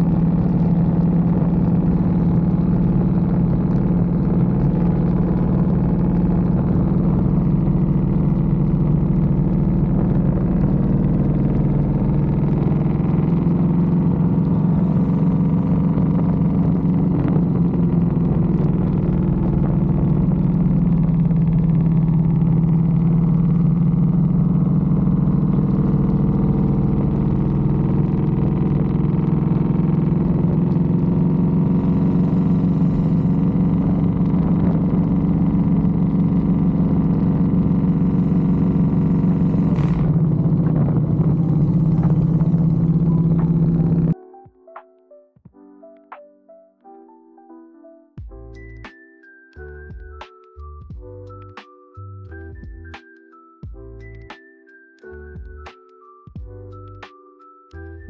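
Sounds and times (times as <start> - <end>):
motorcycle engine running: 0.0 - 44.2.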